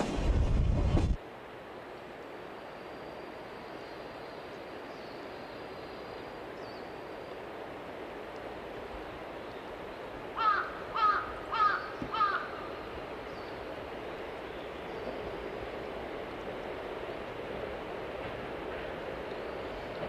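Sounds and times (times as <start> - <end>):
train running: 0.0 - 1.2, 5.6 - 20.0
bird harsh calls: 10.4 - 13.6.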